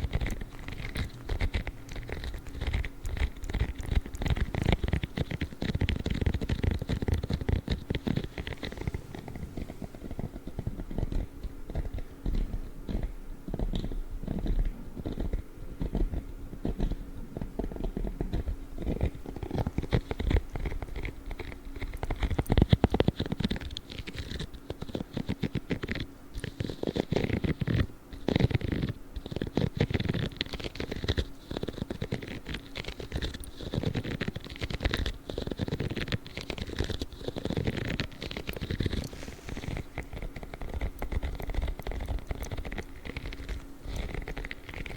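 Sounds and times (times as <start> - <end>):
gloves scratching and rubbing: 0.0 - 44.9.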